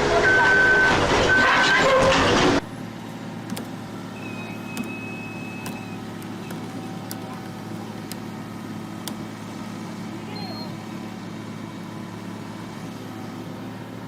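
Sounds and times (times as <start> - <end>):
loud noisy burst: 0.0 - 2.6
vehicle engine running: 2.2 - 14.0
brief high tone: 10.3 - 10.8.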